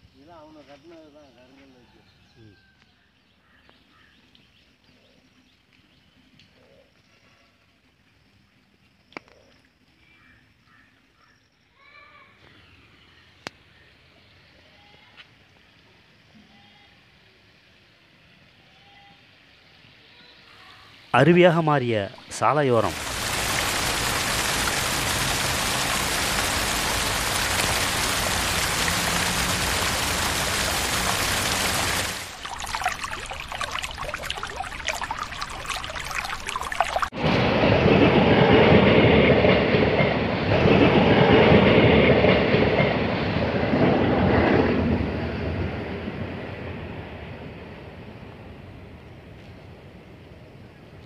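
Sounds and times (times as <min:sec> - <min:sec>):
floodwater rushing: 0:21.2 - 0:37.2.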